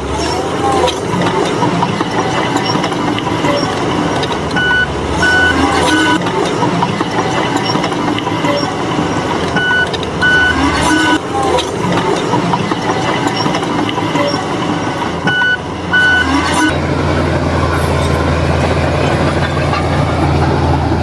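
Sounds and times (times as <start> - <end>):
diesel engine running: 0.0 - 21.0
reversing alarm beeping: 1.2 - 11.3, 12.4 - 16.8.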